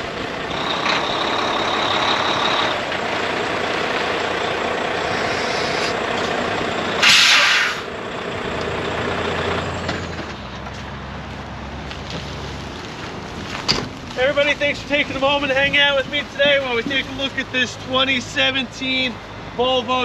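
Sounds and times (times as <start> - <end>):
heavy truck running: 0.0 - 20.0
air brake hiss: 5.1 - 6.0, 7.0 - 7.9.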